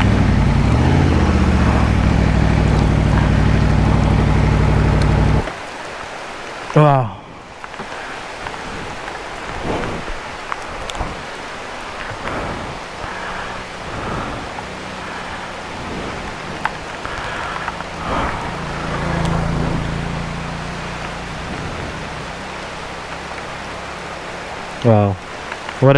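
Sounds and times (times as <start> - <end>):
faint motorcycle engine: 0.0 - 5.5, 12.5 - 24.8.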